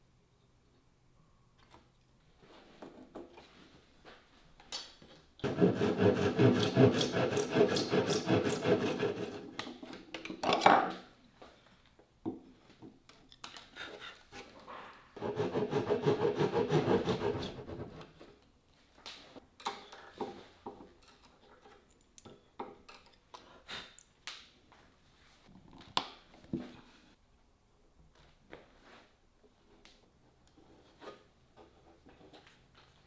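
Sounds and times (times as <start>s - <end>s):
wood rasping: 5.4s - 9.6s, 15.2s - 18.0s.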